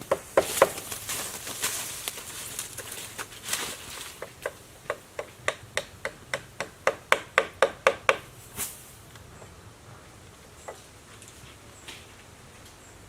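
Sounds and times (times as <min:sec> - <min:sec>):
tool striking wood: 0:00.0 - 0:00.9, 0:04.2 - 0:08.3.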